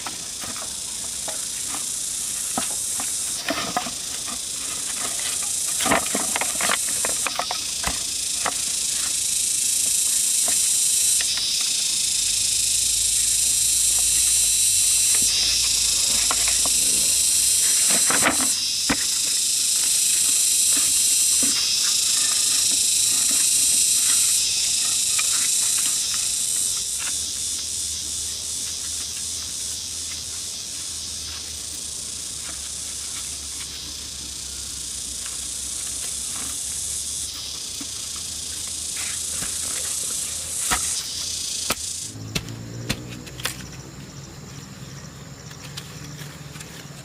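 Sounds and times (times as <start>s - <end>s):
insects buzzing: 0.0s - 47.0s.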